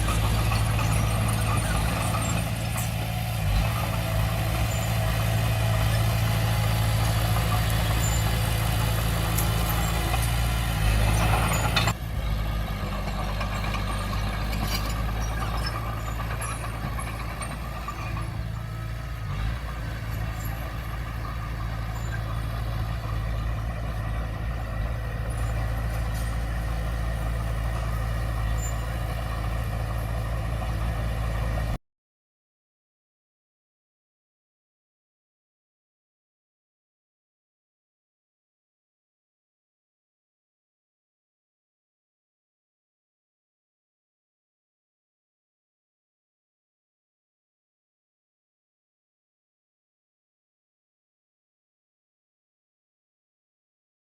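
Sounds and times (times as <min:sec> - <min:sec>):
bulldozer diesel engine running: 0:00.0 - 0:31.8.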